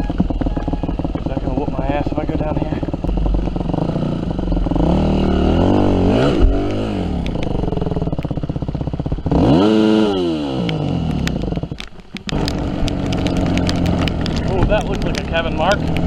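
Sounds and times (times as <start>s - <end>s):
dirt bike engine revving: 0.0s - 16.0s
clicks and knocks: 11.1s - 16.0s.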